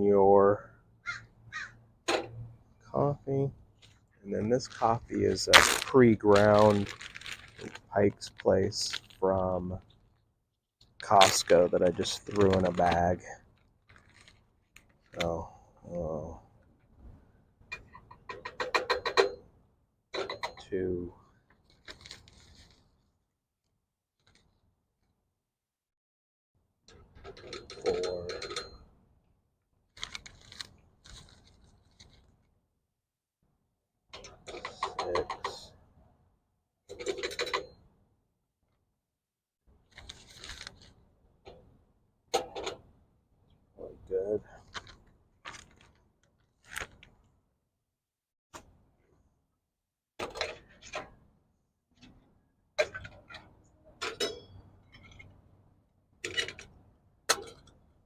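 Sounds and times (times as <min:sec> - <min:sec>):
ground coffee scraping and crunching: 0:04.8 - 0:07.7
metal parts clicking and clinking: 0:27.2 - 0:28.8.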